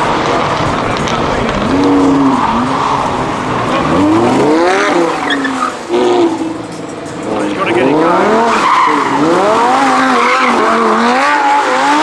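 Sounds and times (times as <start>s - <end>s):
car engine revving hard: 0.0s - 12.0s
tyres squealing and skidding: 0.0s - 12.0s.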